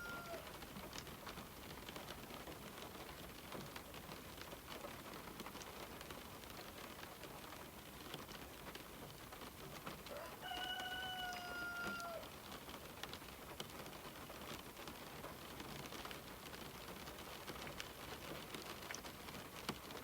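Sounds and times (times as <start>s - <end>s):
rooster crowing: 0.0s - 0.5s, 10.1s - 12.4s
rain pattering: 0.0s - 20.0s.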